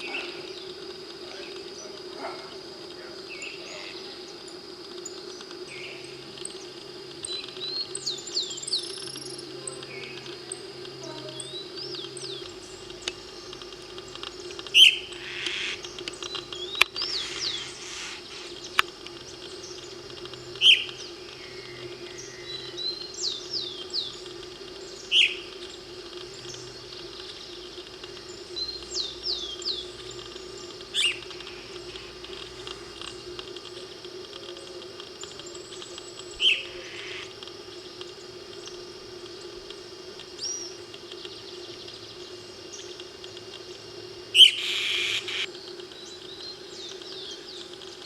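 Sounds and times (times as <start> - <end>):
steady low hum: 0.0 - 48.0
bird high whistled notes: 44.4 - 45.5
bird short downward call: 44.4 - 45.5.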